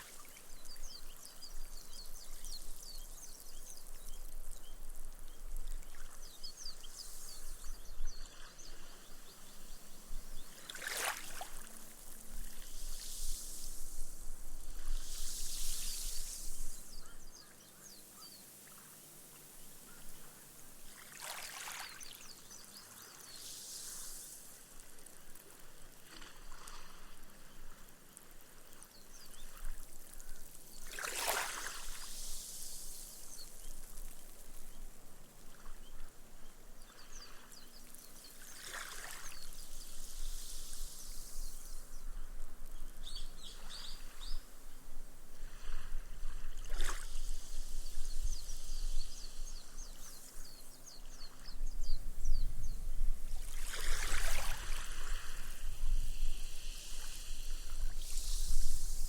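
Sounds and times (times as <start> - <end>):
soft water splashes: 10.3 - 13.8, 20.7 - 34.8, 37.0 - 41.2, 53.3 - 55.7
waves washing up a beach: 10.4 - 17.0, 20.2 - 34.2, 36.9 - 41.8, 53.3 - 59.0.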